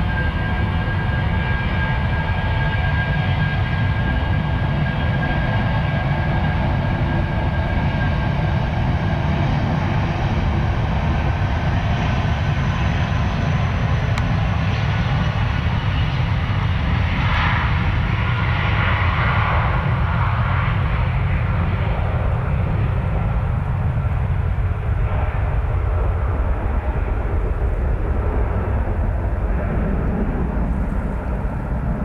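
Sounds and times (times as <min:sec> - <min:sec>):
jet engines whining: 0:00.0 - 0:32.0
low rumble: 0:21.6 - 0:32.0.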